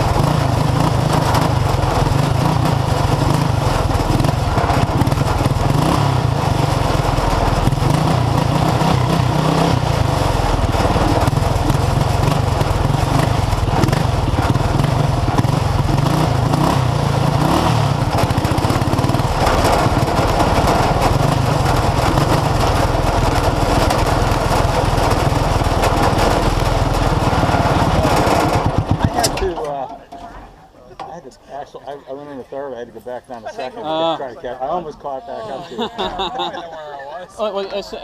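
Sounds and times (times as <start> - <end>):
lawn tractor engine at high revs: 0.0 - 29.6.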